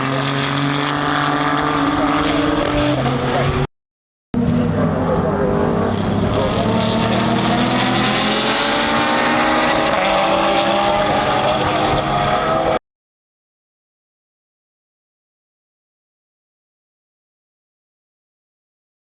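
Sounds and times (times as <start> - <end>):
race car engines running hard: 0.0 - 3.7, 4.4 - 12.8.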